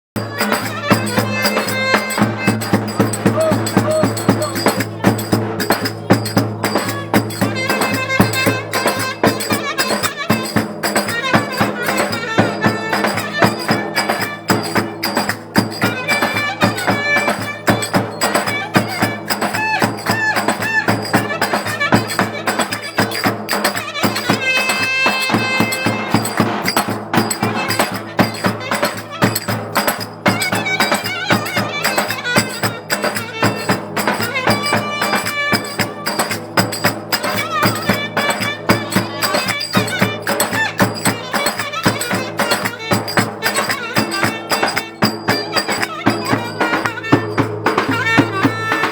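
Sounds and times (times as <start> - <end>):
fast percussion beat: 0.2 - 48.9
folk melody: 0.2 - 48.9.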